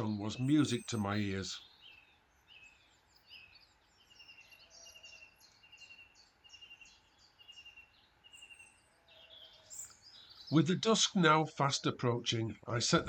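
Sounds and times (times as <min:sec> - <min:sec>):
bird repeating trilled phrase: 0:00.0 - 0:02.8
high bird chirps: 0:00.0 - 0:11.6.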